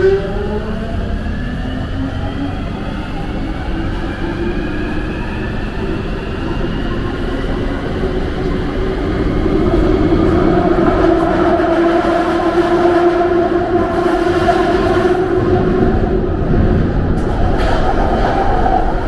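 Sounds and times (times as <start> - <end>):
train rumble on tracks: 0.0 - 19.0.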